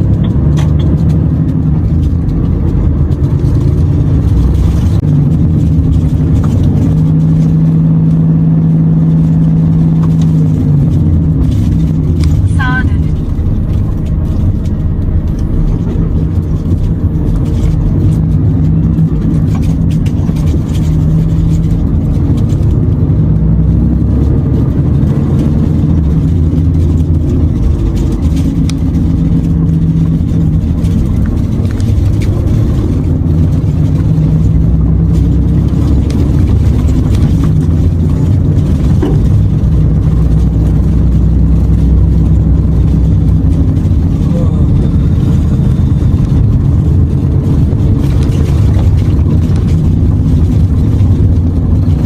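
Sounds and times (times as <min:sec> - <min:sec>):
truck diesel engine drone: 0:00.0 - 0:52.0.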